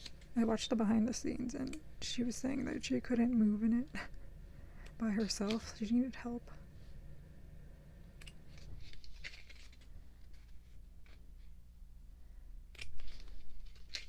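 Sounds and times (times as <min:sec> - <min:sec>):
glossy pages turning: 0:08.5 - 0:11.6, 0:12.7 - 0:14.0.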